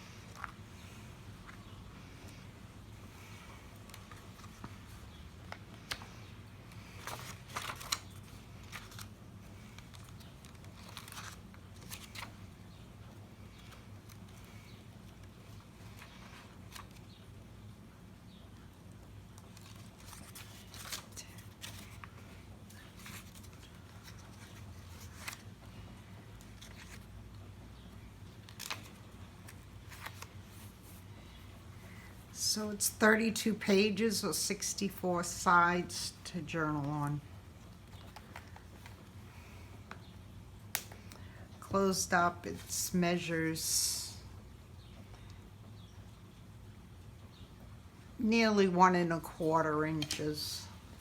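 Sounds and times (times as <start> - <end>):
paper pages turning: 0.1 - 2.4, 3.2 - 12.5, 13.5 - 17.2, 19.4 - 27.1, 28.3 - 31.1, 37.8 - 39.1.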